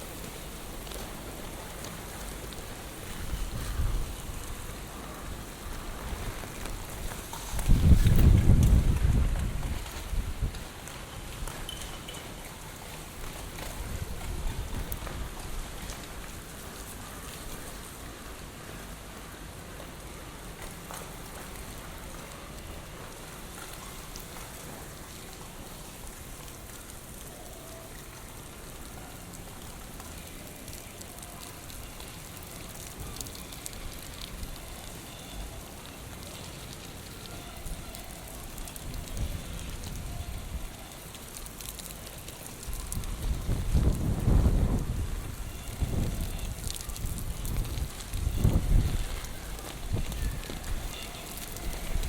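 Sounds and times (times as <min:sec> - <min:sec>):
rain hissing on hard surfaces: 0:00.0 - 0:52.0
wind gusting against microphone: 0:02.9 - 0:11.4, 0:42.6 - 0:52.0.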